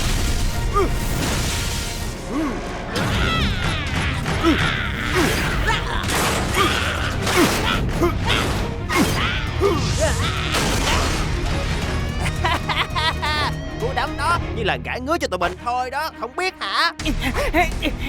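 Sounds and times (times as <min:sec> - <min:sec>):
background music: 0:00.0 - 0:18.0
cartoon punches and hits: 0:03.0 - 0:09.2.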